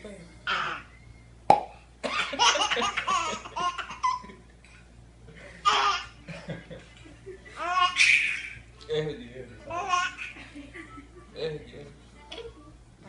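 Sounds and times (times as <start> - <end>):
sharp pop: 1.5 - 1.7
baby laughing: 2.1 - 4.4, 5.6 - 6.2, 7.6 - 8.6, 9.7 - 10.6.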